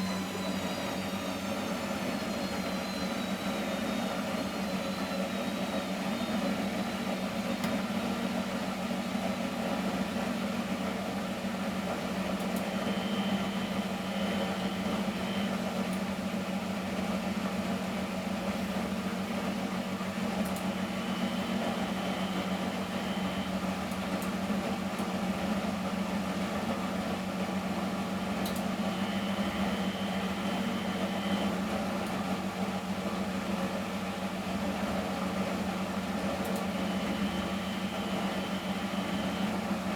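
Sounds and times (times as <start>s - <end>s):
faint high whine: 0.0s - 7.0s
washing machine running: 0.0s - 39.9s.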